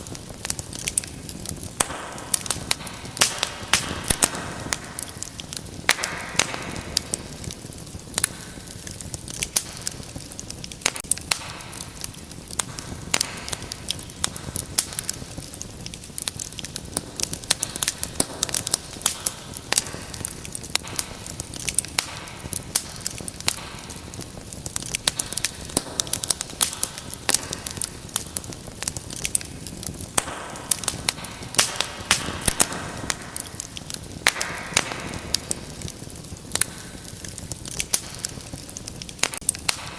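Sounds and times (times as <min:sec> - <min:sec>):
low rush of flames: 0:00.0 - 0:39.9
wood fire crackling and popping: 0:00.0 - 0:39.9.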